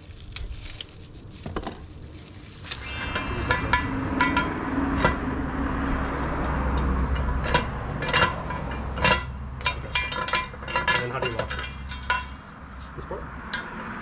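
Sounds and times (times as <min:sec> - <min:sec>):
low rumble: 0:02.8 - 0:08.0
metal jack stand clinking: 0:06.5 - 0:13.8.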